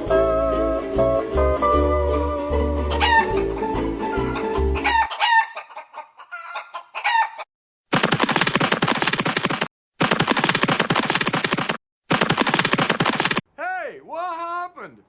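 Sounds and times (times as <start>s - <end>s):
guitar music: 2.4s - 4.8s
chickens calling: 2.9s - 7.5s
rooster crowing: 2.9s - 7.5s.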